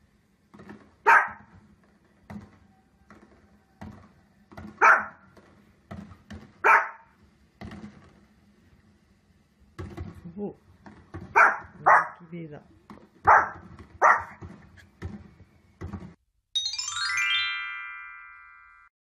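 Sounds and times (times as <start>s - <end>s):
small dog barking: 1.0s - 1.5s, 4.8s - 5.2s, 6.6s - 7.1s, 11.3s - 12.2s, 13.2s - 14.4s
short thuds: 12.8s - 16.2s.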